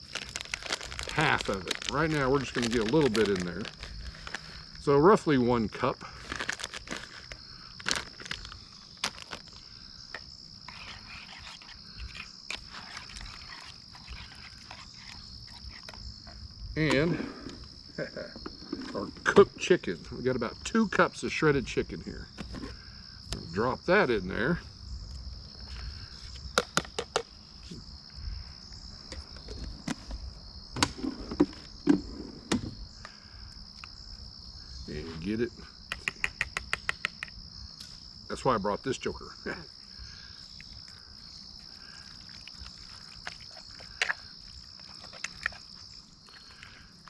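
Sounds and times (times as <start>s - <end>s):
plastic bag crinkling: 0.0s - 4.8s, 6.2s - 9.5s
crickets chirring: 0.0s - 47.0s
frogs or insects calling: 0.0s - 47.0s.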